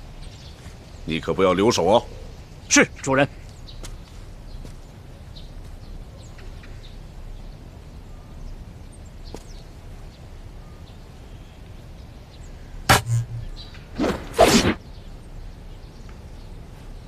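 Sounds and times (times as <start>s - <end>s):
faint bird chirps: 0.0s - 17.0s
wooden staff swishing: 12.9s - 14.8s.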